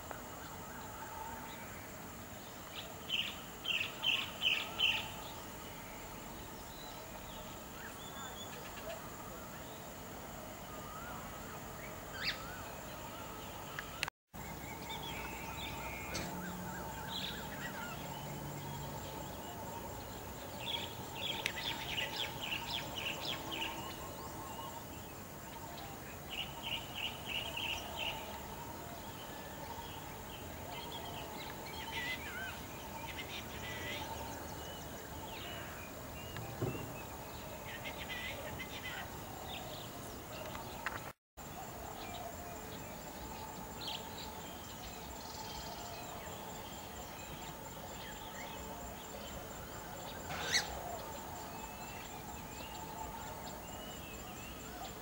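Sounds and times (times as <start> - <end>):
bird chirping: 11.8 - 55.0
outdoor background hum: 13.2 - 53.8.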